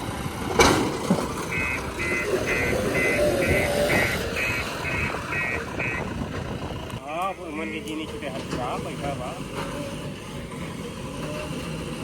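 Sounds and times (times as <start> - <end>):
diesel engine running: 0.0 - 12.0
reversing alarm beeping: 1.5 - 6.2.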